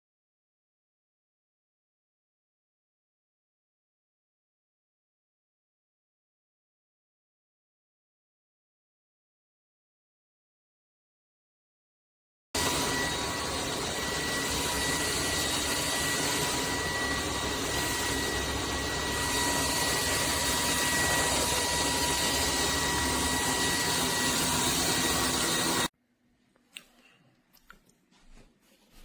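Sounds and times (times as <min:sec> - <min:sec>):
stick vacuum cleaner running: 0:12.6 - 0:25.9.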